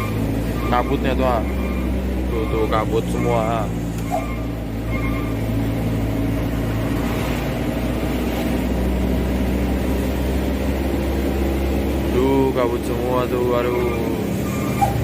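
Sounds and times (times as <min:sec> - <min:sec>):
truck diesel engine running: 0:00.0 - 0:15.0.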